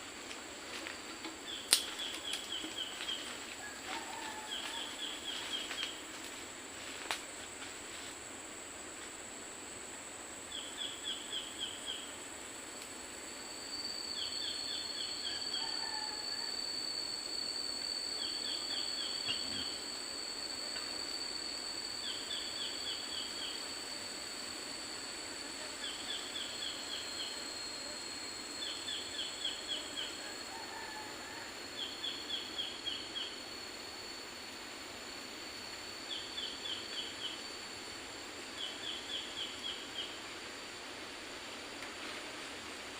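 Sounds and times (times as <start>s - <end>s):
high-pitched insect drone: 0.0s - 42.9s
lower insect tone: 0.0s - 42.9s.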